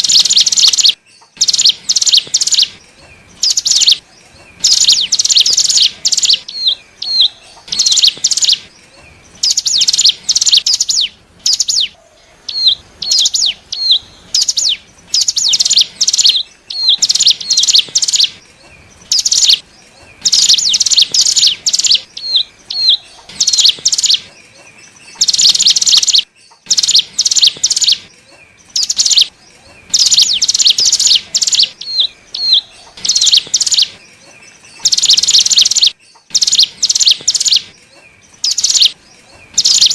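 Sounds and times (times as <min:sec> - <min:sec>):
bird lure call chattering: 0:00.0 - 0:02.7, 0:03.4 - 0:04.0, 0:04.6 - 0:08.6, 0:09.4 - 0:18.4, 0:19.1 - 0:19.6, 0:20.2 - 0:24.3, 0:25.1 - 0:28.1, 0:28.7 - 0:29.3, 0:29.9 - 0:34.0, 0:34.7 - 0:37.7, 0:38.4 - 0:39.9
single hooked bird chips: 0:00.0 - 0:08.7, 0:14.4 - 0:18.4, 0:23.1 - 0:32.0, 0:32.8 - 0:39.9.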